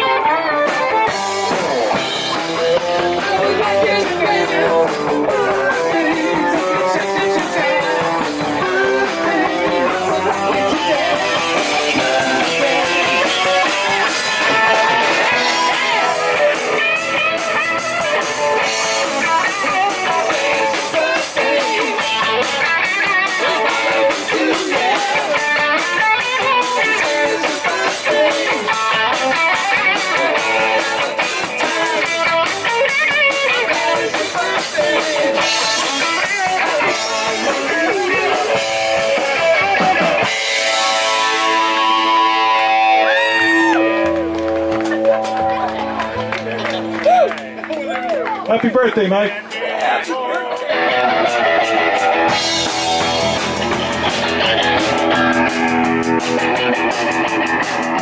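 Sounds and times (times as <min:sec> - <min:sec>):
drum kit: 0:00.0 - 0:48.5, 0:50.6 - 0:58.0
electric guitar lead: 0:00.0 - 0:48.5, 0:50.4 - 0:58.0.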